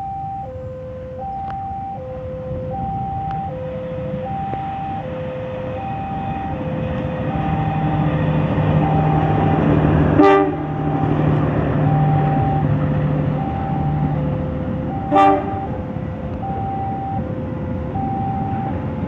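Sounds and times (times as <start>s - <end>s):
locomotive horn toot: 0.0s - 8.0s, 8.8s - 12.8s, 14.9s - 15.9s
diesel locomotive running: 0.0s - 19.0s
two-tone warning alarm: 0.0s - 19.0s.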